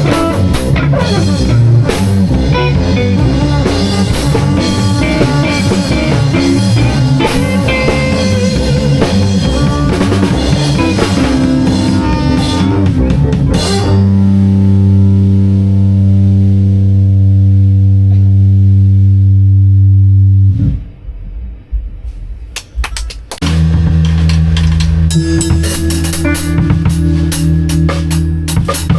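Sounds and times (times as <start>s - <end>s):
drum kit playing: 0.0s - 16.8s, 21.3s - 28.9s
electric guitar playing: 0.0s - 21.7s, 23.4s - 28.9s
low ringing note: 24.5s - 28.5s.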